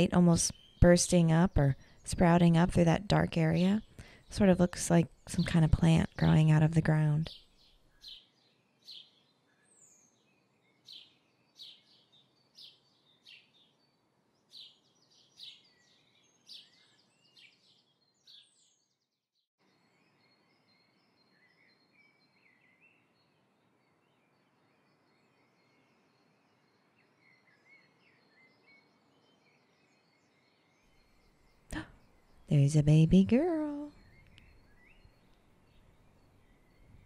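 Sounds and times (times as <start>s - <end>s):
faint bird chirps: 19.7s - 37.0s.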